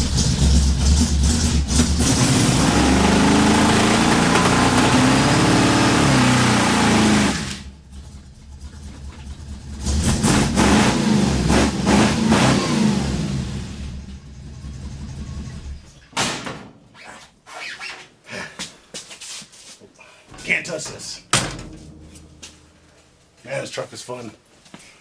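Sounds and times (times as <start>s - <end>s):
pickup truck engine revving: 0.0s - 15.9s.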